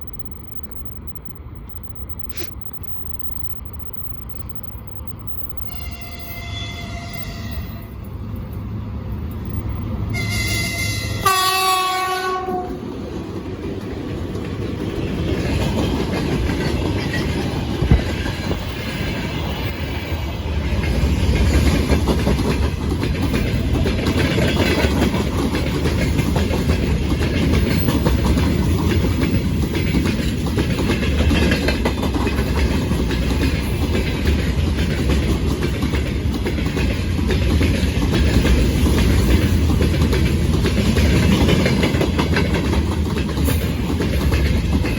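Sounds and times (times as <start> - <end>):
locomotive horn: 5.6 - 8.0, 10.1 - 12.8
train wheels clattering over rail joints: 13.2 - 44.9.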